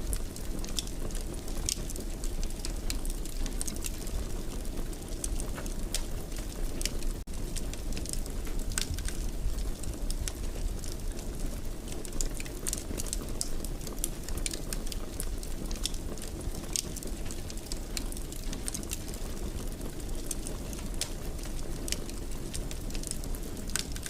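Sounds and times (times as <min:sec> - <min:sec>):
low rumble of burning: 0:00.0 - 0:24.0
wood fire crackling and popping: 0:00.0 - 0:24.0.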